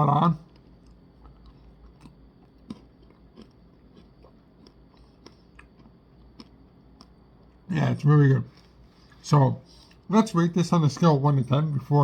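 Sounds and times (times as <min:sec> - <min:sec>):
faint chewing mouth clicks: 0:00.5 - 0:07.6.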